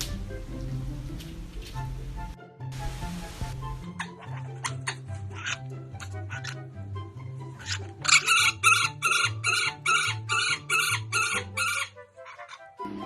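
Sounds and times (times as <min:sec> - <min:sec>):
bird calling shrilly: 0:07.6 - 0:12.6.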